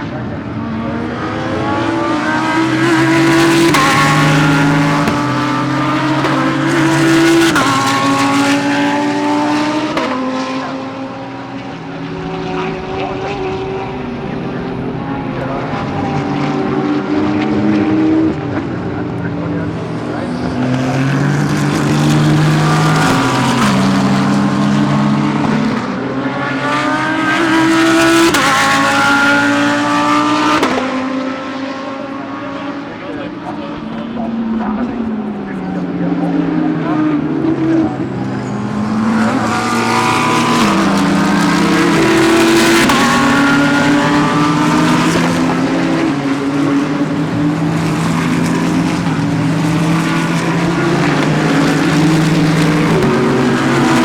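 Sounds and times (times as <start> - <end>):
engine upshifts: 0.0 - 54.0
race car engine accelerating: 0.0 - 54.0.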